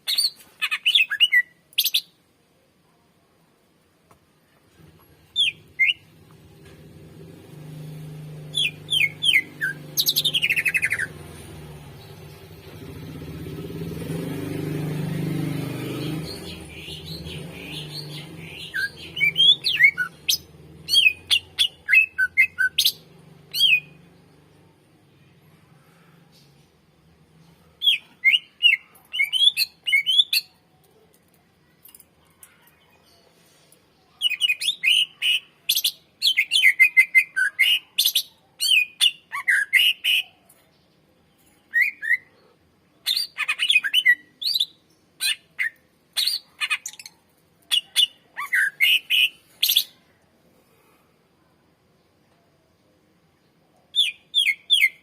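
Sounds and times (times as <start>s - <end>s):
bird singing rapid chirps: 5.4s - 6.1s, 8.0s - 24.5s, 27.8s - 30.6s, 43.0s - 50.1s, 53.9s - 55.0s.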